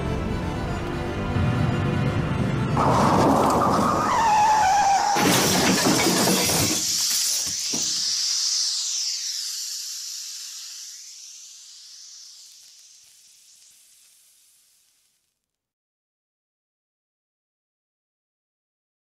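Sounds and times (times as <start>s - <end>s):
loud shattering crash: 2.8s - 8.0s
high wavering hiss: 6.3s - 15.3s.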